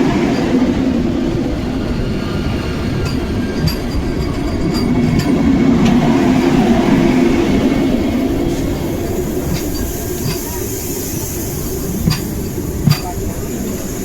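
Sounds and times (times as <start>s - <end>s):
train wheels rumbling: 0.0s - 14.0s
sharp wheel clacks: 2.9s - 6.1s, 8.5s - 13.4s.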